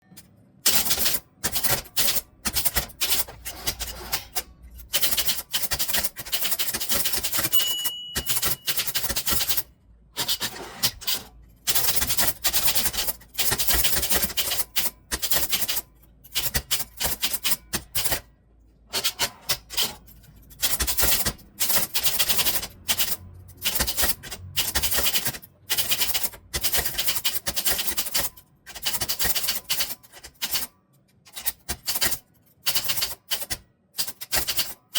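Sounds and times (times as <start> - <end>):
typewriter key strikes: 0.1 - 10.4
typewriter bell ringing: 7.1 - 9.6.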